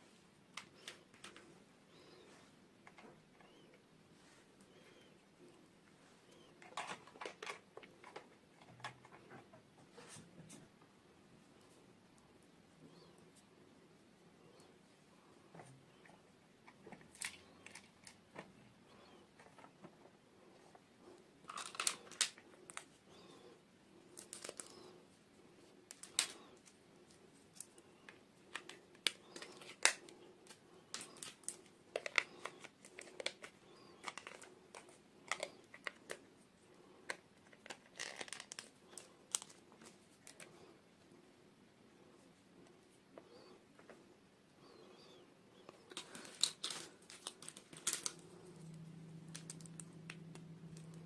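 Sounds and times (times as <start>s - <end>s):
plastic pieces clicking and tapping: 16.9s - 18.5s, 21.5s - 22.9s, 27.6s - 36.2s, 37.1s - 40.5s, 45.7s - 48.2s
packaging crinkling: 21.4s - 22.9s, 24.1s - 24.9s, 28.5s - 36.2s, 37.1s - 40.5s, 45.9s - 50.9s.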